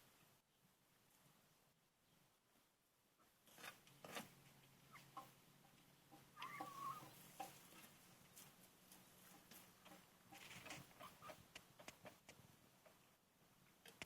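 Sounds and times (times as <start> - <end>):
hens clucking: 4.7 - 13.0.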